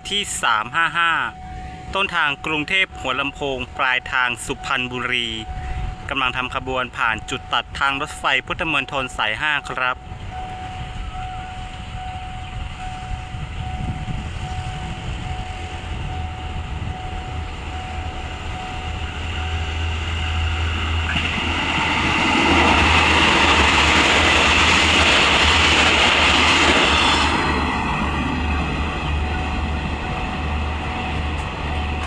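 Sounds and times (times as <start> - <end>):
diesel train engine rumble: 0.0 - 32.0
wheels on rails: 10.0 - 32.0.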